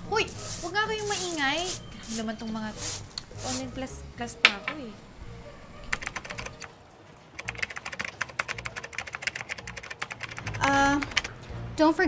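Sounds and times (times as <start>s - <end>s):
laptop keyboard typing: 5.9s - 6.7s, 7.3s - 11.3s.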